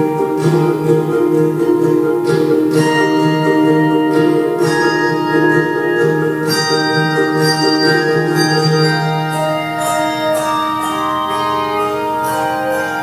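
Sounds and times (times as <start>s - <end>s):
held keyboard chords: 0.0s - 13.0s
struck ringing notes: 0.0s - 13.0s.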